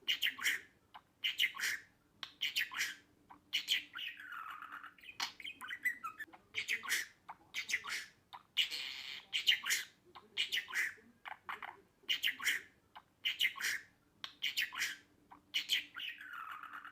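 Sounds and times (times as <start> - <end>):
budgerigar chattering: 0.0 - 16.9.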